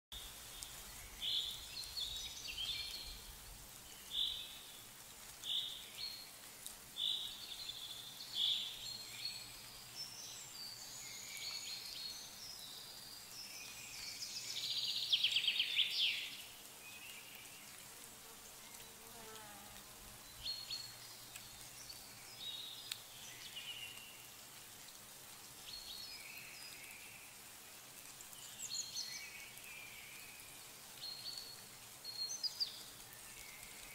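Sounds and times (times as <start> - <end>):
faint steady hiss: 0.1 - 33.9
songbirds chirping: 0.1 - 33.9.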